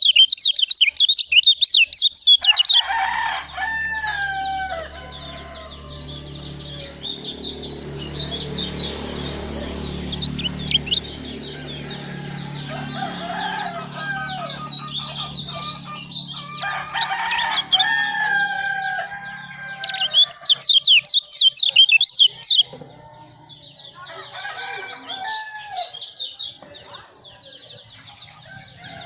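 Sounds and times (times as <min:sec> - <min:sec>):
bird chirps and trills: 0:00.0 - 0:29.0
rooster crowing: 0:02.4 - 0:06.4, 0:11.4 - 0:22.6, 0:24.1 - 0:26.0, 0:28.4 - 0:29.0.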